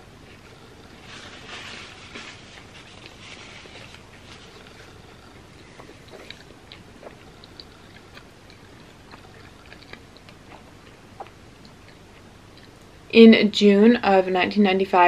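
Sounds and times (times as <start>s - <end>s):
chewing with wet clicks: 4.5s - 12.9s.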